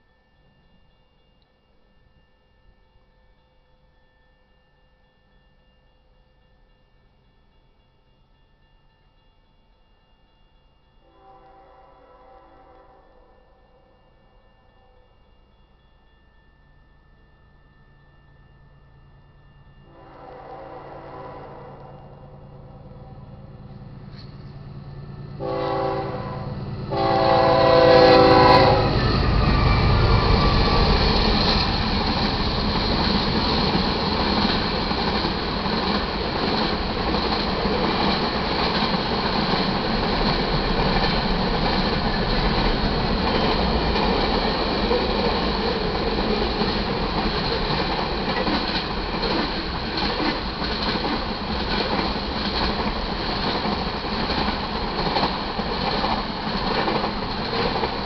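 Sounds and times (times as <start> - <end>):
locomotive horn blasts: 11.1 - 13.0, 19.9 - 23.3, 25.4 - 29.0
freight train cars clattering: 26.9 - 58.0.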